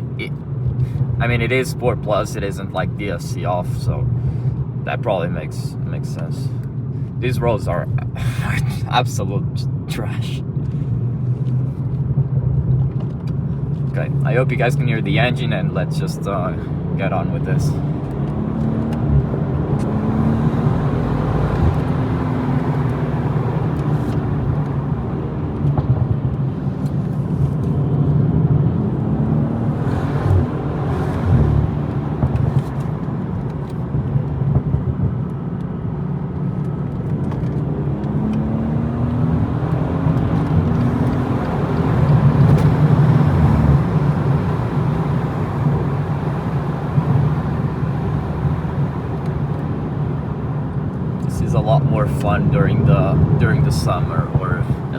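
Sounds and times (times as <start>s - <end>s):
road and tyre noise: 0.0s - 54.9s
car engine revving hard: 17.3s - 25.8s, 27.4s - 32.8s, 37.4s - 49.8s.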